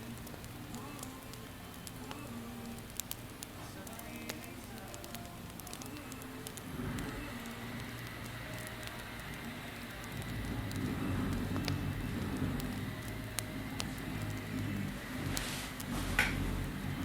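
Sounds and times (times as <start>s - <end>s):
campfire crackling and popping: 0.0s - 17.0s
fire hiss: 0.0s - 17.0s
low rumble: 6.7s - 17.0s.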